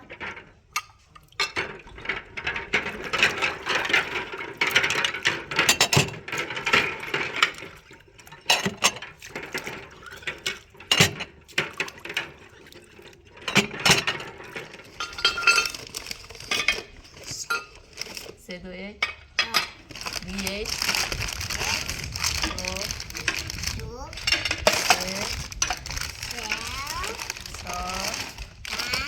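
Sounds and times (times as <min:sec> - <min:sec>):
dishes and utensils clinking: 0:00.0 - 0:18.3, 0:19.0 - 0:21.1
rustling noise: 0:19.7 - 0:29.0.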